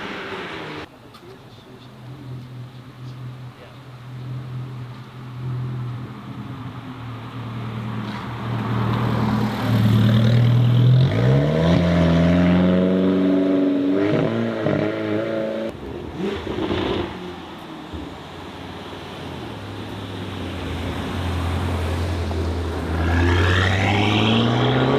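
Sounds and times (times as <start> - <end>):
car engine revving: 7.8 - 18.0, 18.6 - 24.9.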